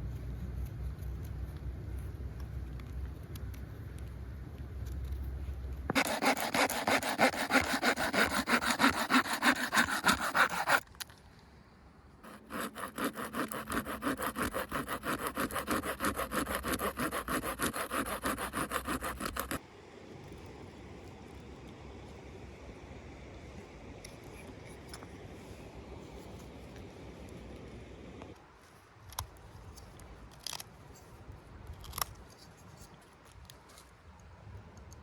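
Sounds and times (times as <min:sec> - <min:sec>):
hand saw cutting wood: 0:05.9 - 0:10.8, 0:12.2 - 0:19.6.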